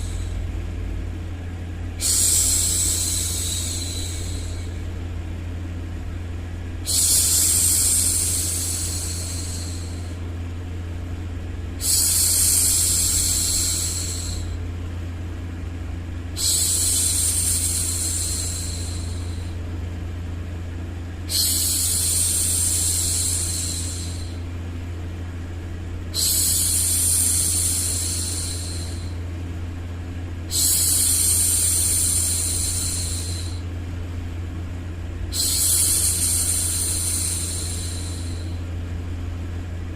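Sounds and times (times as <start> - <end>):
steady low hum: 0.0 - 39.9
woman shushing: 26.1 - 29.2.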